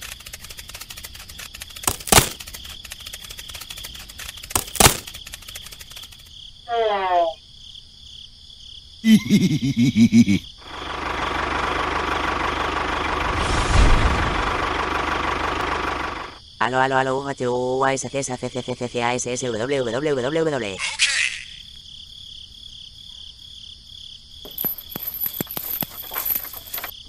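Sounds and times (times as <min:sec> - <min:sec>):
toy tractor motor running: 0:00.0 - 0:06.3.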